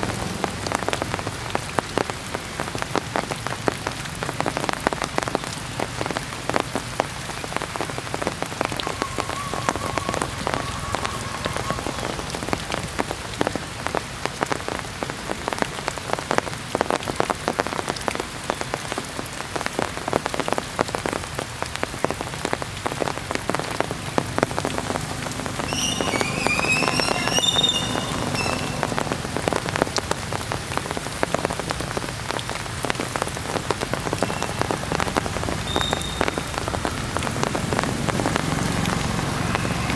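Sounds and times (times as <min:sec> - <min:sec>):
heavy rain pattering: 0:00.0 - 0:39.9
high chirping calls: 0:08.6 - 0:12.8, 0:24.7 - 0:29.6, 0:35.7 - 0:36.7.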